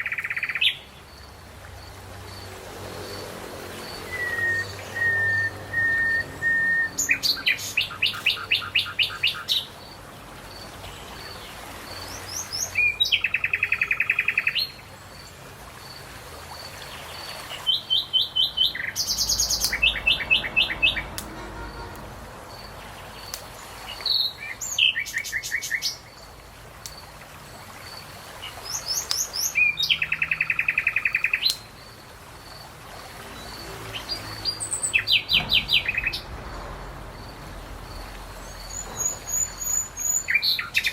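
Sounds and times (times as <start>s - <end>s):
songbird trilling: 0.0s - 0.9s, 4.0s - 9.7s, 12.1s - 14.8s, 17.6s - 21.2s, 28.6s - 31.8s, 38.5s - 40.9s.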